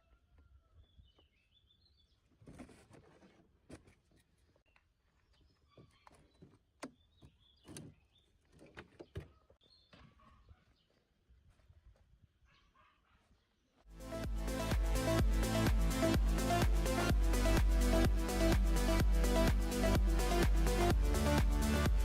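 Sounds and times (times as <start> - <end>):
small birds chirping: 0.7 - 2.4, 4.4 - 11.1.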